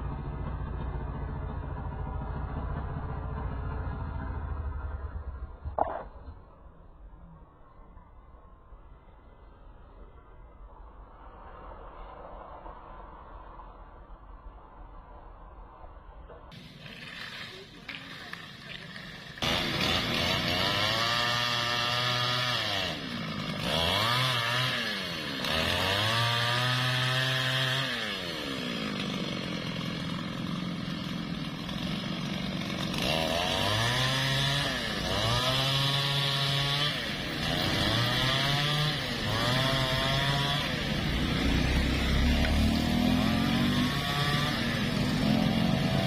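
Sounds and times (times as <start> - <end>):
chainsaw revving cutting wood: 16.5 - 46.0.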